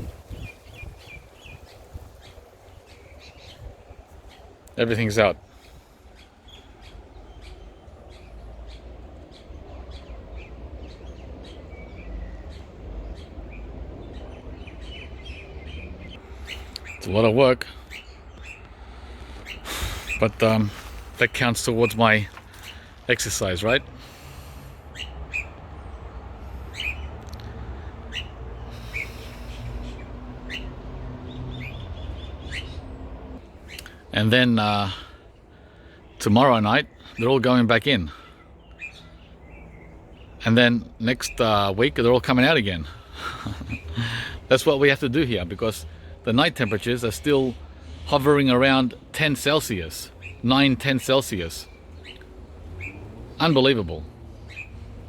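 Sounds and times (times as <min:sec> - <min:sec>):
steady low rumble: 0:00.0 - 0:32.2
small birds chirping: 0:00.0 - 0:55.0.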